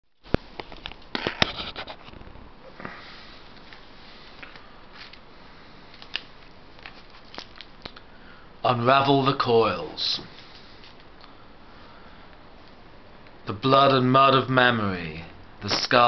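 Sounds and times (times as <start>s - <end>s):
rustling: 0.1s - 8.0s
steady hiss: 0.2s - 16.0s.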